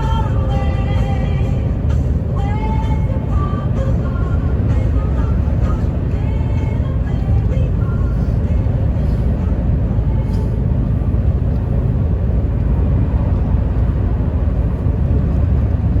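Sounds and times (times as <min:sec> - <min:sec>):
heavy road vehicle rumble: 0:00.0 - 0:16.0.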